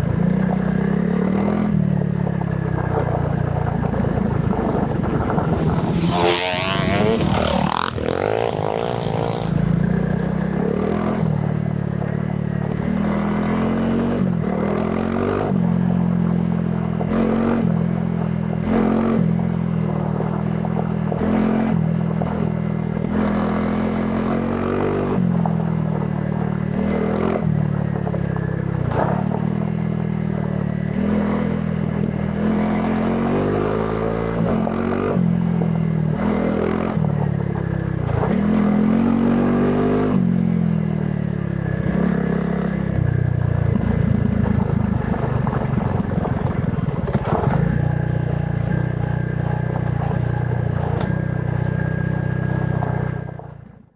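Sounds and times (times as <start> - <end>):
motorcycle engine revving: 0.0 - 53.8
bike clattering over rough ground: 44.1 - 48.2.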